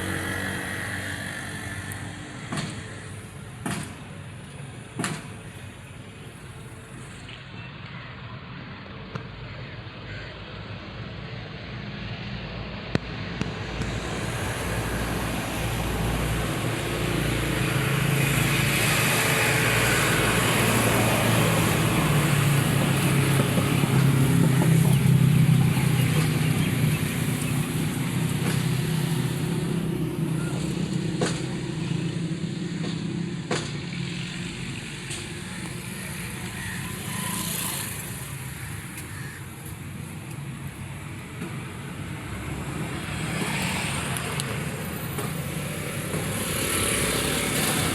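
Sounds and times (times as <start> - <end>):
tractor engine running: 12.8 - 47.9.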